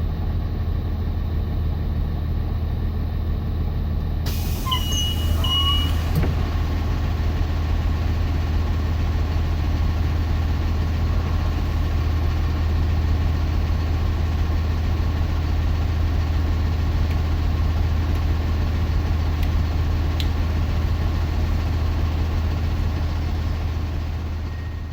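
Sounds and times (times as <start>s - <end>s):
diesel bus engine idling: 0.0s - 24.9s
air hiss: 4.3s - 6.3s.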